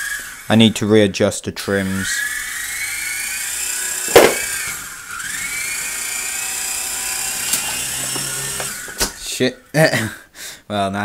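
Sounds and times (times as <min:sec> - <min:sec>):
toy helicopter motors whining: 0:00.0 - 0:00.9, 0:01.6 - 0:09.3
sharp knock: 0:04.1 - 0:04.5.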